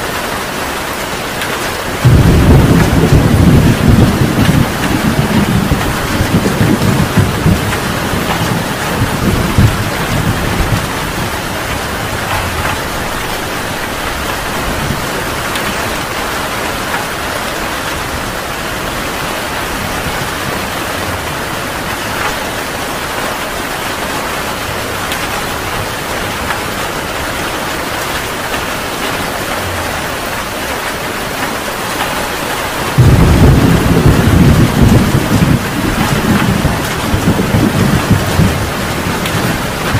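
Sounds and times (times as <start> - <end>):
heavy rain pouring: 0.0 - 39.9
thunder rumbling: 1.8 - 39.9
loud thunderclap: 2.0 - 16.2, 32.8 - 39.9.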